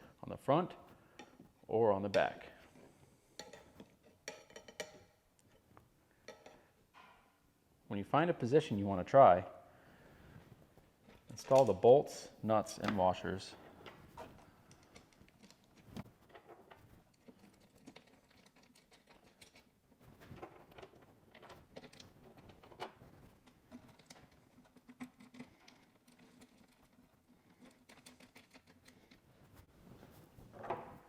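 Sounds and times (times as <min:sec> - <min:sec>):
bolts and washers clicking: 0:03.4 - 0:05.6.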